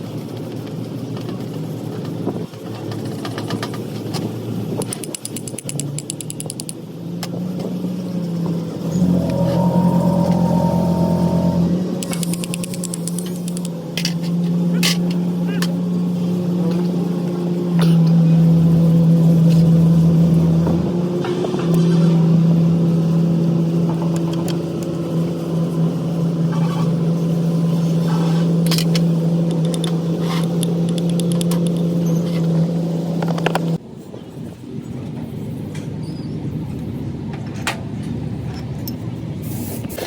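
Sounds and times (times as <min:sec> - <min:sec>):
machine humming: 0:08.7 - 0:14.0
sharp clicks: 0:12.0 - 0:13.7.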